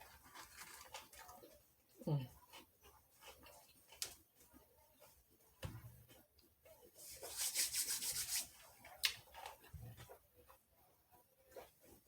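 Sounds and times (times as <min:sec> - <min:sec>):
rubbing rustling near microphone: 0:07.0 - 0:08.8.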